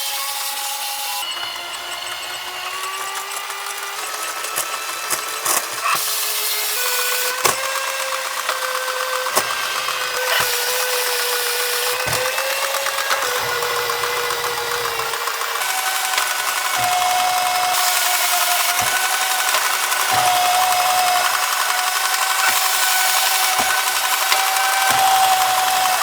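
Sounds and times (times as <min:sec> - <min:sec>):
small electric motor whining: 0:00.0 - 0:26.0
sharp clicks and knocks: 0:06.8 - 0:26.0.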